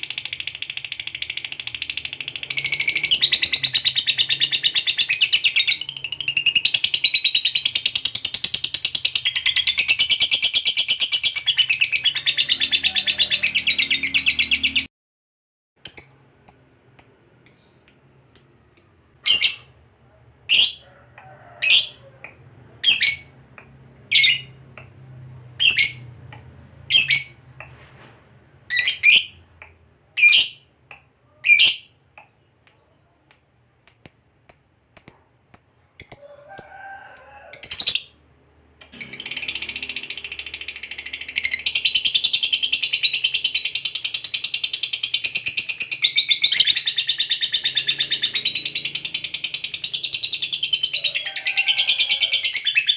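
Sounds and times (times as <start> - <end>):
lovebird sharp chirps: 15.8 - 19.8.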